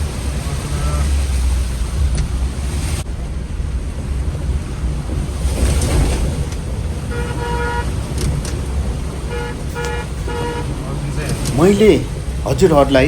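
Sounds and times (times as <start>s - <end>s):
rushing water: 0.0s - 13.0s
street traffic rumble: 0.0s - 13.0s
vehicle horn honking: 7.0s - 8.2s, 9.2s - 11.0s.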